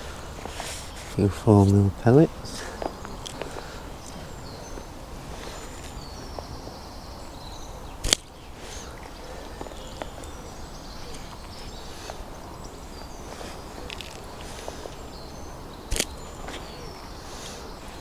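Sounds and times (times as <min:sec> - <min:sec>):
faint birdsong: 0:00.0 - 0:18.0
low wind rumble: 0:00.0 - 0:18.0
sharp snap: 0:08.0 - 0:08.3, 0:15.9 - 0:16.2.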